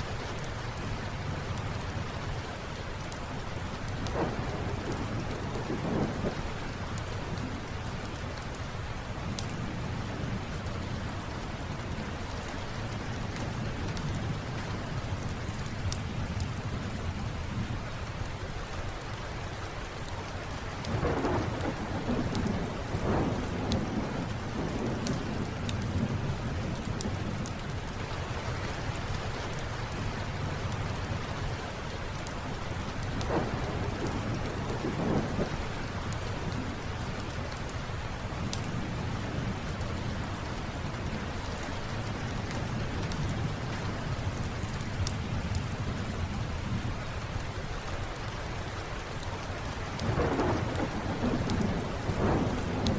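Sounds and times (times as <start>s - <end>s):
steady rain: 0.0s - 52.9s
wood fire crackling: 0.0s - 52.9s
thunder rolling: 4.1s - 6.6s, 20.9s - 27.7s, 32.9s - 35.6s, 50.0s - 52.9s.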